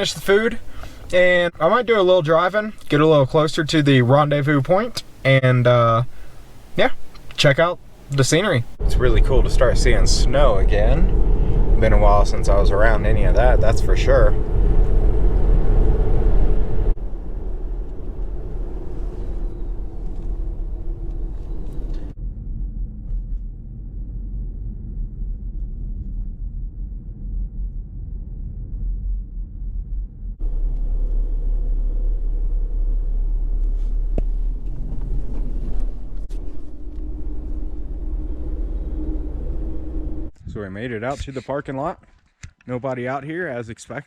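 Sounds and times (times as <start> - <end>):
car engine and road rumble: 0.0 - 27.6, 28.4 - 40.4.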